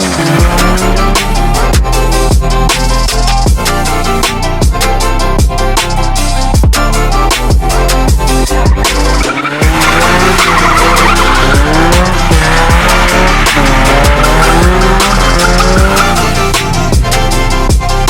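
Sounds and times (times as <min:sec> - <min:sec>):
tires squealing: 0:00.0 - 0:04.4, 0:07.2 - 0:17.3
electronic music with heavy beat: 0:00.0 - 0:18.0.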